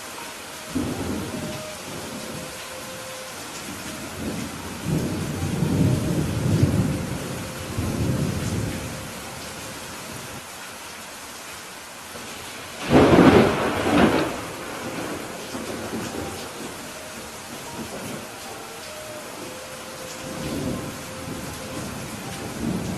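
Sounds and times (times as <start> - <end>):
steady rain: 0.0 - 22.9
rolling thunder rumble: 0.7 - 3.0, 3.6 - 9.4, 12.8 - 19.6, 20.2 - 22.9
loud thunderclap: 12.8 - 16.6.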